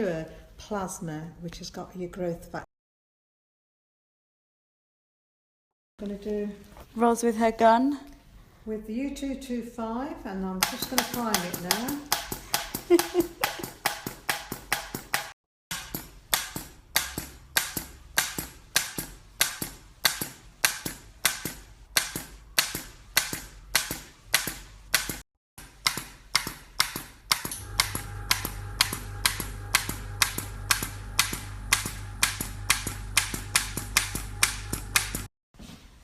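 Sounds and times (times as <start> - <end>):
low steady hum: 27.6 - 35.2.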